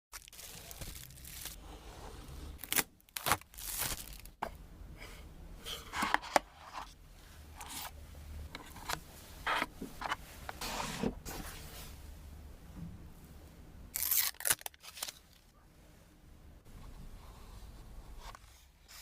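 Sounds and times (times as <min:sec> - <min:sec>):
cardboard and plastic tearing: 0:00.1 - 0:01.6, 0:02.6 - 0:04.4, 0:14.0 - 0:15.4.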